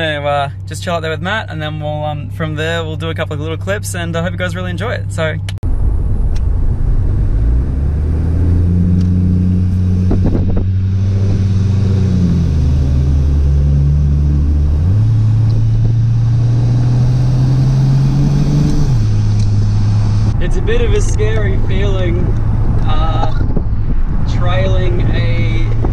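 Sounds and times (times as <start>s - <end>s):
car engine cruising: 0.0s - 25.9s.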